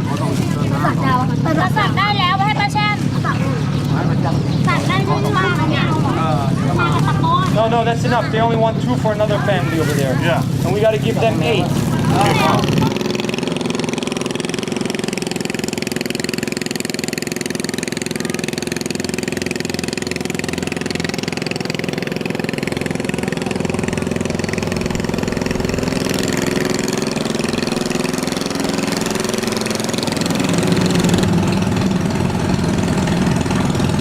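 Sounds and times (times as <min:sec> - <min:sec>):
boat motor running: 0:00.0 - 0:34.0.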